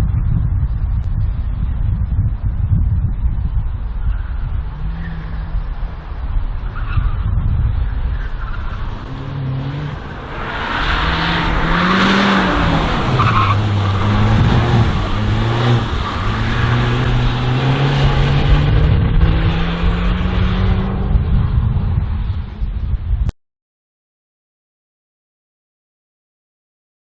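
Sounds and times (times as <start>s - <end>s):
race car engine revving: 8.6s - 21.4s.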